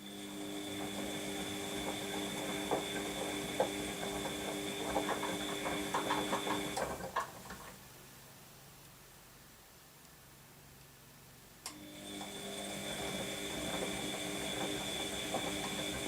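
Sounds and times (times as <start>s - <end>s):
washing machine motor humming: 0.0s - 7.8s, 11.7s - 16.0s.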